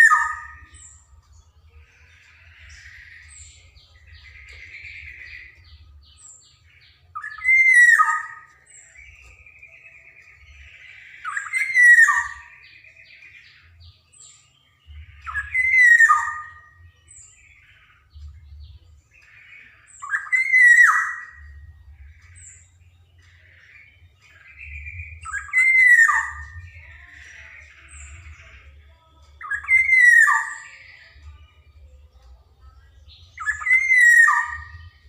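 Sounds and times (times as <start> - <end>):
bird whistling phrases: 0.0 - 0.9, 7.2 - 13.2, 15.1 - 16.8, 19.6 - 21.6, 24.4 - 26.9, 29.4 - 30.9, 33.4 - 34.9.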